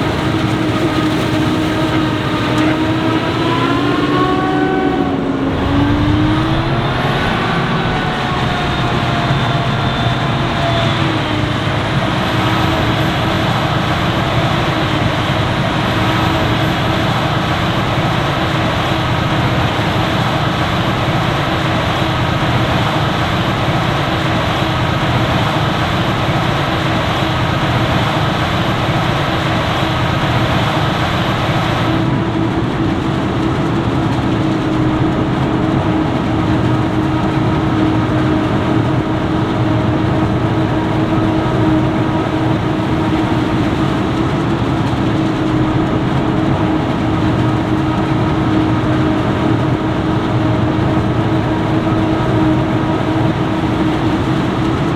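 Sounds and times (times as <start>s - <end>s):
diesel farm machinery drone: 0.0s - 54.9s.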